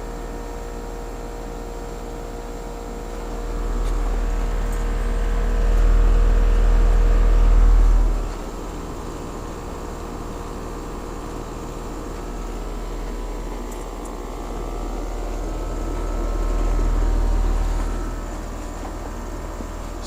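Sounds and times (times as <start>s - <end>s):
fan noise: 0.0s - 20.0s
heat pump compressor hum: 0.0s - 20.0s
low rumble: 3.4s - 8.5s.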